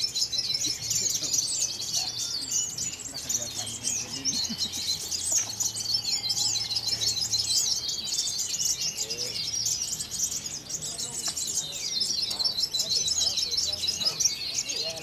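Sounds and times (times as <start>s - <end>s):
songbirds singing in chorus: 0.0s - 15.0s.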